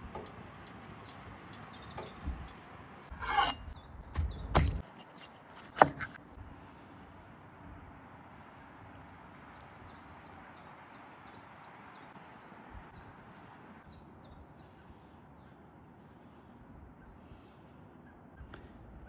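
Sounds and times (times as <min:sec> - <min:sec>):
bird chirping: 0:00.0 - 0:04.8.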